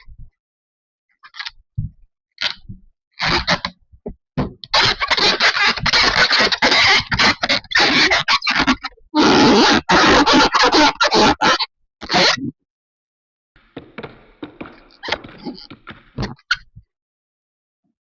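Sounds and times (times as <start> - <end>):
scraping and rubbing: 4.7 - 8.8, 13.6 - 16.4.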